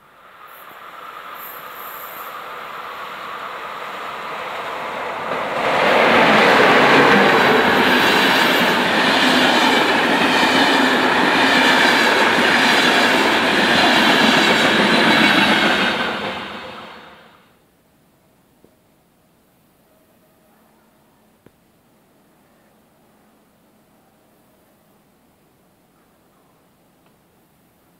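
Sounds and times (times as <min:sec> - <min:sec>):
passenger train passing: 0:00.0 - 0:17.5.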